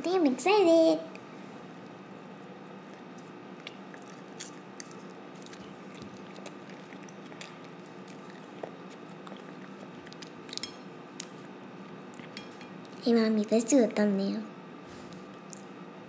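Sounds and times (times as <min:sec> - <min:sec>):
faint room hum: 0:00.0 - 0:16.0
child chewing food: 0:02.5 - 0:13.0, 0:14.9 - 0:15.8.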